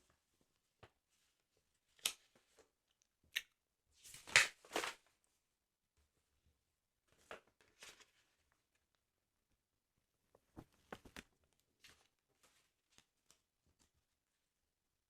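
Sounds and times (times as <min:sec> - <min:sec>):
paper crackling and rustling: 0:04.1 - 0:05.1, 0:07.1 - 0:08.5.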